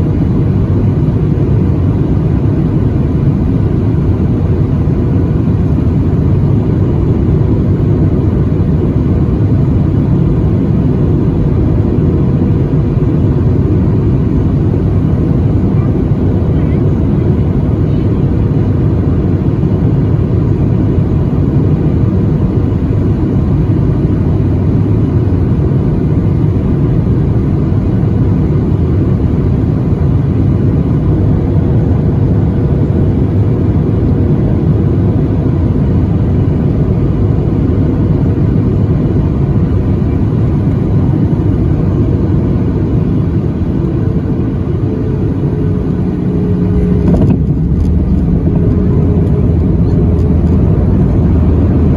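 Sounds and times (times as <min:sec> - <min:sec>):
aircraft cabin engine noise: 0:00.0 - 0:51.9.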